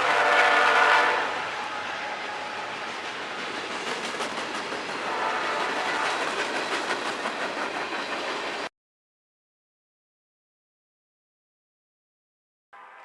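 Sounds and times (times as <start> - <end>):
train wheels clacking over rail joints: 2.4 - 8.7.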